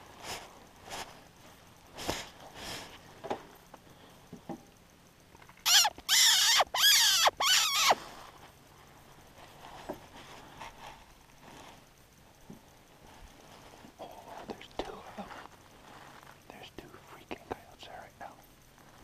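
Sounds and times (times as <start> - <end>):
faint rustles: 0.0 - 5.6, 7.6 - 19.0
predator call squeals: 5.6 - 8.0.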